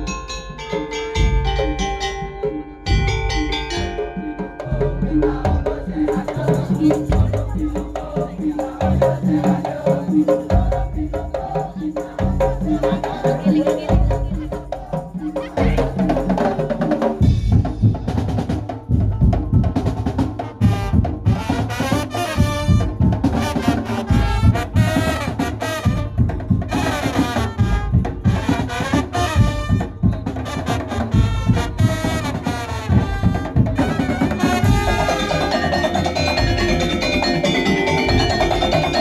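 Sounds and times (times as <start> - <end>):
fast heavy drumming: 1.1 - 39.0
loud horn-like melody: 20.4 - 37.6.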